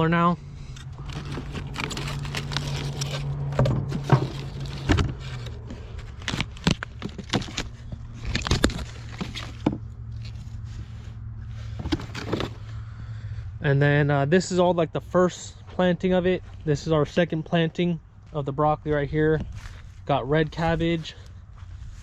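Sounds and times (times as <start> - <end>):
short crunches and scrapes: 0.0 - 13.1, 18.2 - 22.0
low engine hum: 0.0 - 22.0.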